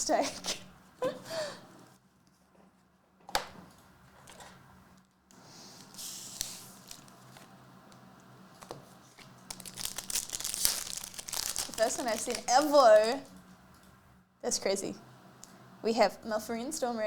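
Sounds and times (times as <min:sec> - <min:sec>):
cards and wrapper rustling: 0:05.8 - 0:07.5, 0:09.0 - 0:13.3
foil wrapper crinkling: 0:05.9 - 0:07.5, 0:09.1 - 0:13.4.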